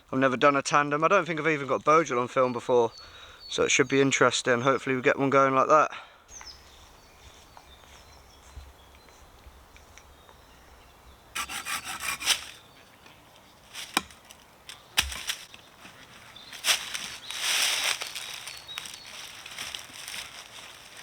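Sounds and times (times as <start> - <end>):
hand tool rasping wood: 11.4 - 12.6
wood cracking: 13.8 - 15.6.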